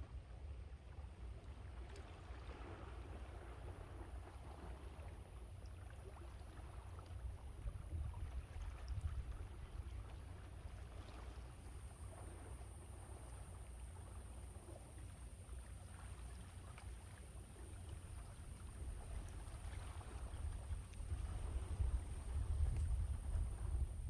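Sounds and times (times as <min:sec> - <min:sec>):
wind rumbling on microphone: 0:07.3 - 0:10.9, 0:17.6 - 0:24.0.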